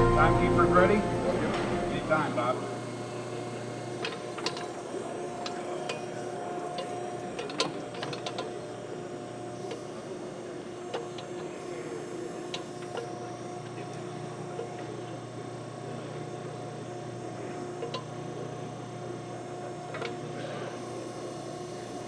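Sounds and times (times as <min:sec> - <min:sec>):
backhoe engine hum: 0:00.0 - 0:02.1.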